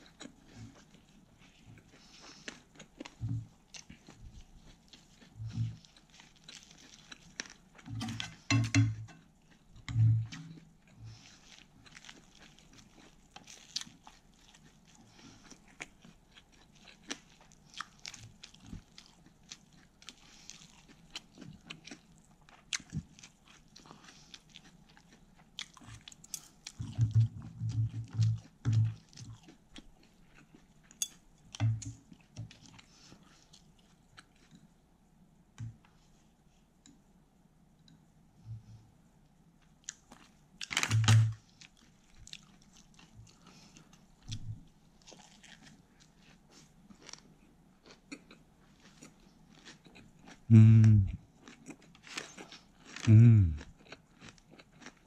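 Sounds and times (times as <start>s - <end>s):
crisp chewing crunches: 0.0s - 8.4s, 10.4s - 30.9s, 39.7s - 55.0s.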